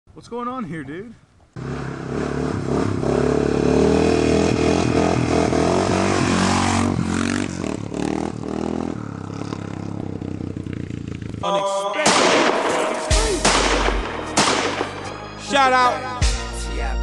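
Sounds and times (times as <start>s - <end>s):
dirt bike engine at high revs: 1.6s - 11.4s.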